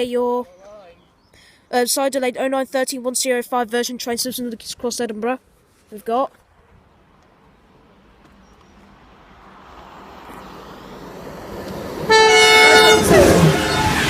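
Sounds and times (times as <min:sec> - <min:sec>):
train rushing past: 0:08.8 - 0:14.0
train horn blast: 0:12.0 - 0:14.0.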